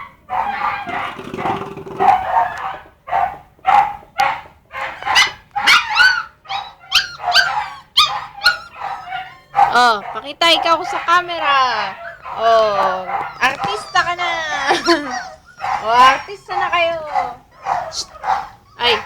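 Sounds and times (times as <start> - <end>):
puppies yelping and whining: 0.0 - 1.0, 4.2 - 19.0.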